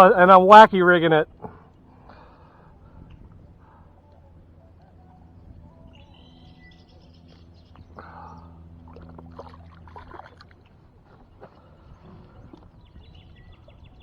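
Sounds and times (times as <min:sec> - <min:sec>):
steady low hum: 0:00.0 - 0:14.0
birds chirping: 0:11.1 - 0:14.0.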